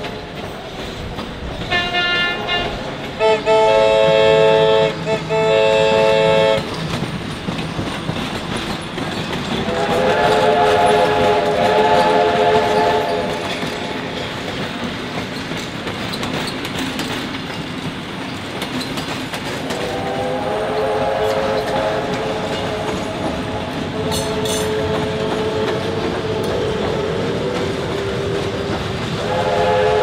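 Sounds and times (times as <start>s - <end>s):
wheels clicking over rail joints: 0.0s - 3.4s, 5.8s - 29.9s
train rumbling on track: 0.0s - 30.0s
train whistle chord blast: 1.7s - 6.6s, 9.6s - 13.6s, 19.7s - 30.0s.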